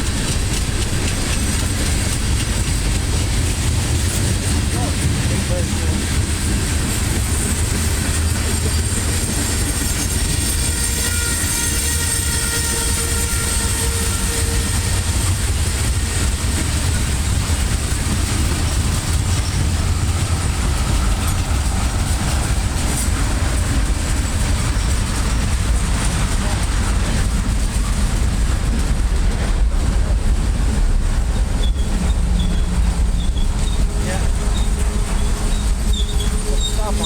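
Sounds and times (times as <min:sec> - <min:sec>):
freight cars rumbling: 0:00.0 - 0:37.0
faint wheel squeal: 0:34.5 - 0:36.9.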